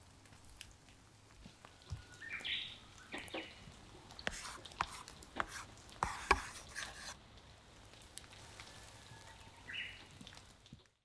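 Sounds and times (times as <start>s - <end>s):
rain dripping and pattering: 0.0s - 6.0s, 7.2s - 11.0s
faint hiss: 2.8s - 10.6s.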